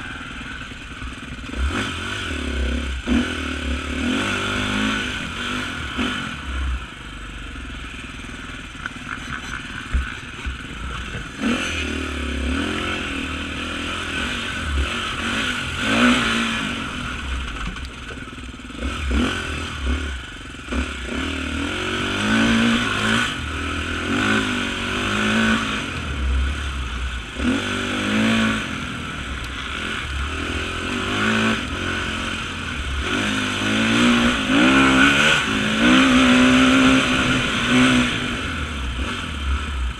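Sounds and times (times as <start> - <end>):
motorcycle engine revving: 0.0 - 39.9
clatter and knocks: 8.8 - 11.4.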